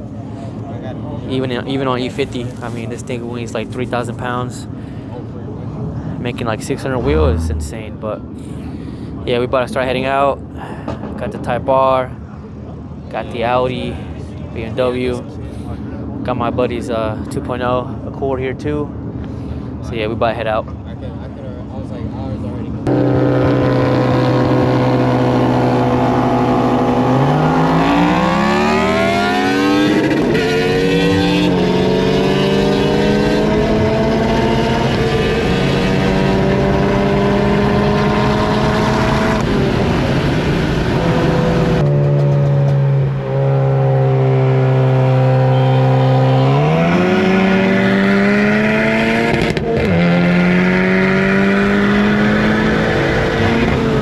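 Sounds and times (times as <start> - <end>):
car engine accelerating: 5.5 - 8.4, 22.7 - 54.0.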